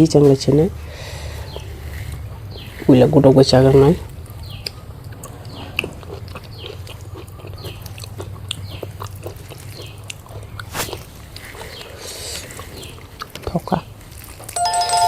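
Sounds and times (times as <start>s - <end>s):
chewing with wet mouth smacks: 1.3s - 2.9s, 3.6s - 14.6s
small mouth clicks: 4.2s - 14.5s.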